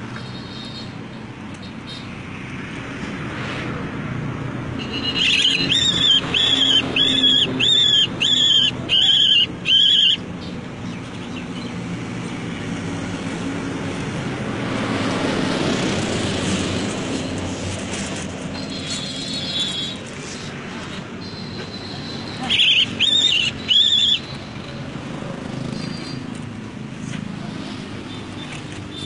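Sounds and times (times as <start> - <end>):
bird shrill cries: 4.8 - 10.3, 21.2 - 24.5.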